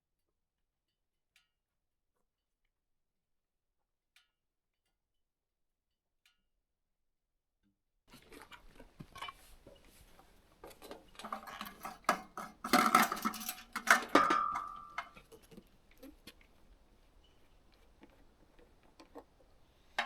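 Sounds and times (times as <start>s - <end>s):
irregular knocks and clanks: 11.2s - 15.2s
metallic ringing: 12.6s - 15.2s.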